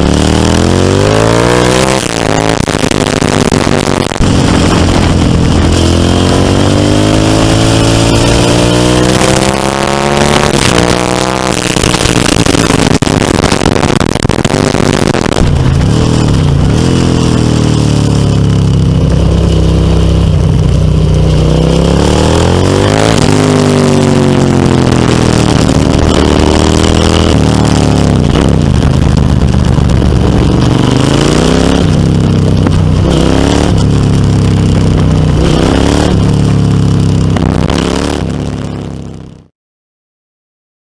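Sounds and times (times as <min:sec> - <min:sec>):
motorcycle engine revving: 0:00.0 - 0:39.5.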